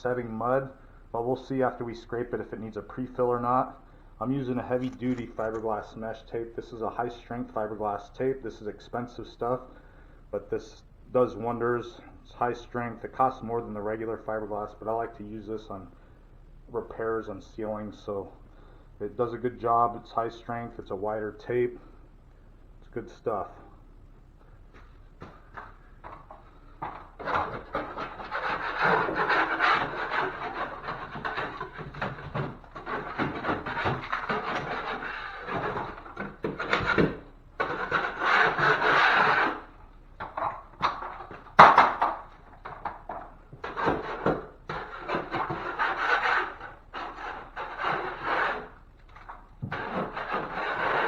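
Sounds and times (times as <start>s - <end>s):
drywall knife scraping: 4.4s - 5.8s, 26.8s - 42.0s, 42.6s - 51.0s.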